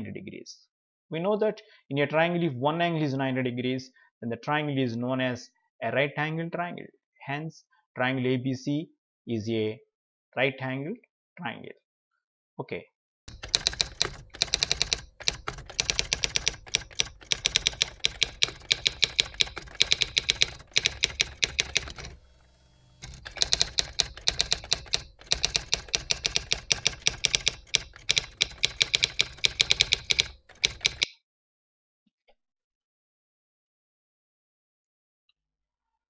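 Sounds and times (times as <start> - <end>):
typewriter keystroke clicks: 13.3 - 22.2, 23.0 - 31.1.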